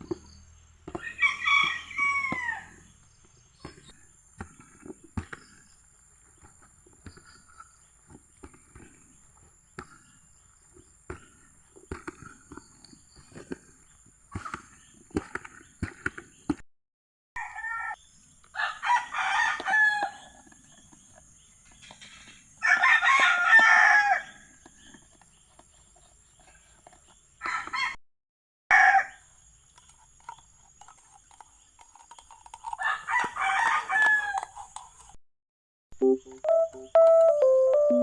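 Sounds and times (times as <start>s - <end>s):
rooster crowing: 0.9s - 2.8s, 18.6s - 20.3s, 22.6s - 24.4s, 28.7s - 29.2s, 32.8s - 34.5s.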